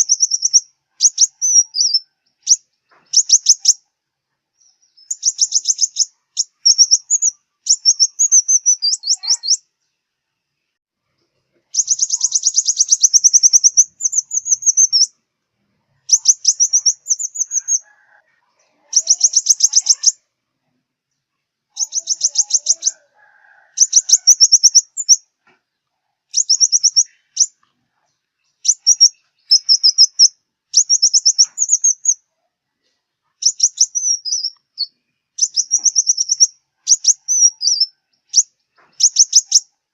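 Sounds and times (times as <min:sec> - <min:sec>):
bird twittering trills: 0:00.0 - 0:03.8, 0:04.6 - 0:09.7, 0:11.7 - 0:15.2, 0:16.0 - 0:18.2, 0:18.8 - 0:20.2, 0:21.7 - 0:25.3, 0:26.3 - 0:27.6, 0:28.4 - 0:32.2, 0:33.4 - 0:39.7.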